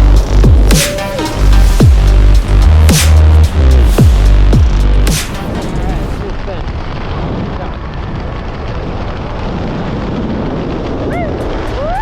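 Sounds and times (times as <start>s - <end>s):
ticking beat: 0.0s - 5.5s
wind on microphone: 5.5s - 12.0s.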